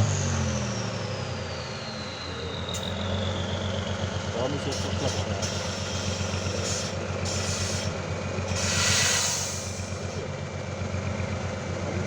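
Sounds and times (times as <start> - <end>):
truck engine idling: 2.4 - 12.0
air brakes hissing: 4.7 - 10.2.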